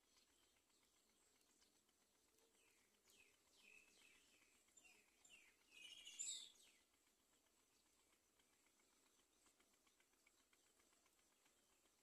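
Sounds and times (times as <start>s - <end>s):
high-pitched bird chirps: 5.7s - 6.6s.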